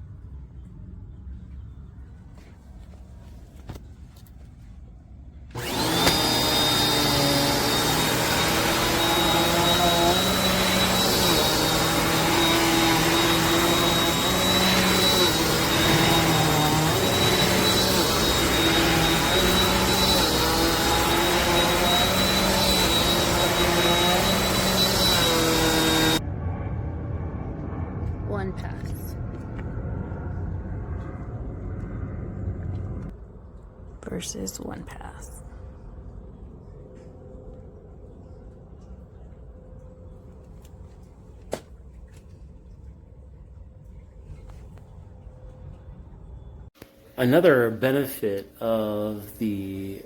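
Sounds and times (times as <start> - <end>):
upright vacuum cleaner running: 5.5 - 26.2.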